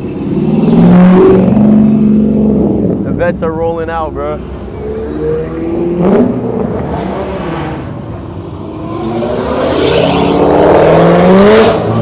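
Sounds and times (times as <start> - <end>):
car engine accelerating: 4.3 - 12.0.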